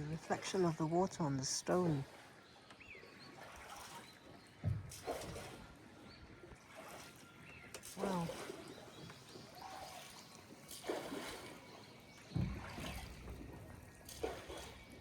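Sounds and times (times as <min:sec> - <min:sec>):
faint water sounds: 0:00.0 - 0:15.0
light knock on boat: 0:04.6 - 0:05.5, 0:12.2 - 0:13.8.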